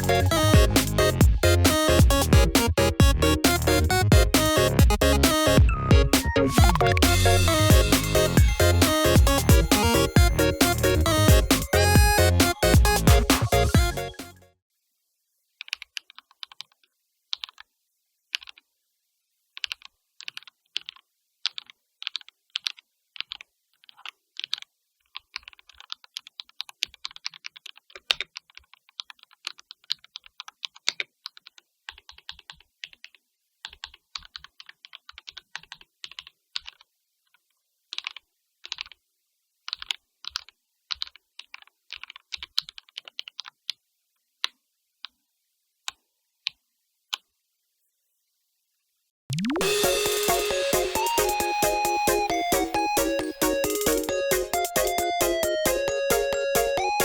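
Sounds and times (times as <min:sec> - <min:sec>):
mechanical keyboard typing: 0:19.6 - 0:36.9, 0:37.9 - 0:39.0, 0:39.7 - 0:43.5.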